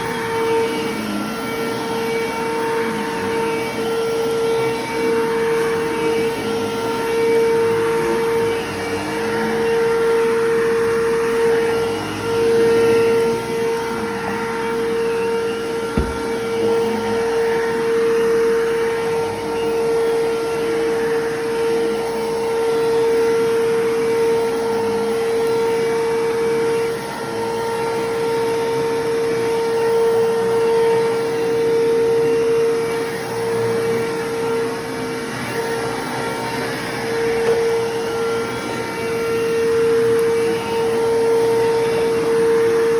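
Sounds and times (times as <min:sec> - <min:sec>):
vacuum cleaner running: 0:00.0 - 0:42.9
sharp knock: 0:16.0 - 0:16.4.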